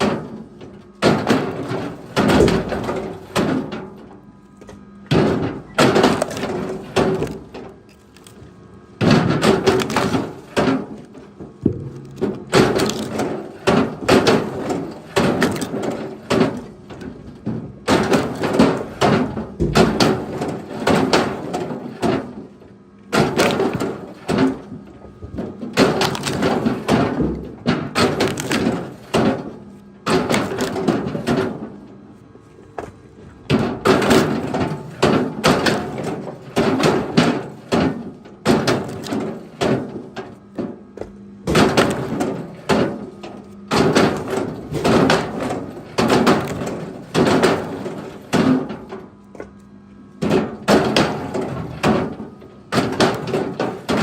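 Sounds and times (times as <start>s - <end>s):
firewood knocking together: 4.6s - 8.4s, 9.0s - 22.4s, 23.1s - 31.7s.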